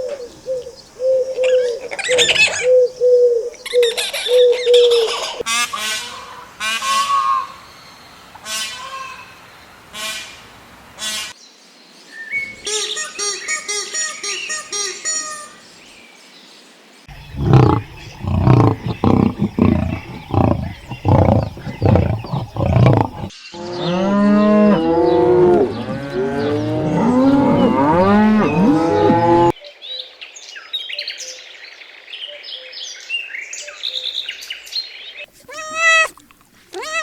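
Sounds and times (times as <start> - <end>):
chorus of overlapping animal calls: 0.0 - 5.4, 17.1 - 29.5
farm animals calling: 0.0 - 7.1, 17.1 - 29.5, 35.2 - 37.0
faint high chirping: 17.1 - 23.3.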